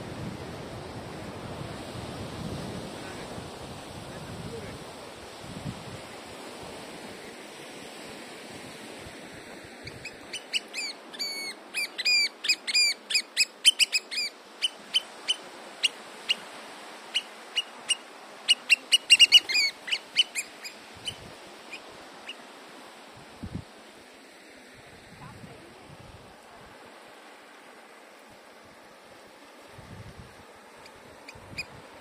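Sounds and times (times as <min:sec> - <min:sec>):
bird calling sharp repeated notes: 0:17.2 - 0:21.2.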